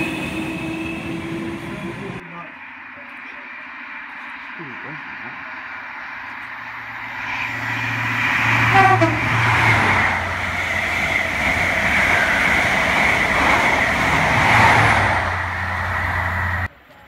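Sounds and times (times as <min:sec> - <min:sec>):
train carriages rushing past: 0:00.0 - 0:16.7
train horn toot: 0:08.6 - 0:09.4.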